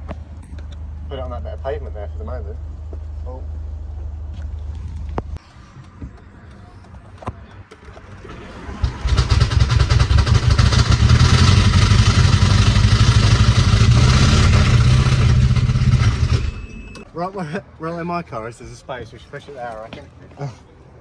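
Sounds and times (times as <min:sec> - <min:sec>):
engine knocking clatter: 0:08.1 - 0:16.7.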